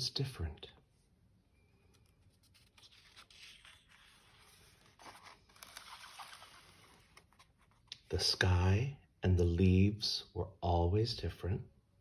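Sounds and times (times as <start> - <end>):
paper page rustling and turning: 1.7 - 8.1.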